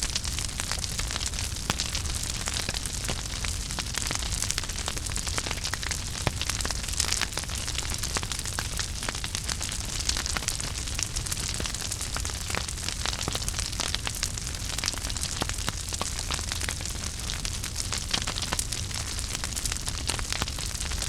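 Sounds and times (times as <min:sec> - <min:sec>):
fire crackling and popping: 0:00.0 - 0:21.0
fire rumbling: 0:00.0 - 0:21.0.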